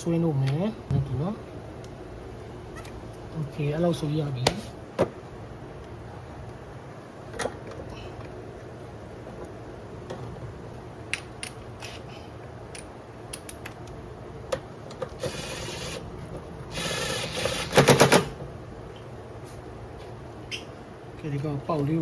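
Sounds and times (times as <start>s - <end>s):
impact wrench bursts: 15.2s - 16.1s, 16.7s - 18.3s.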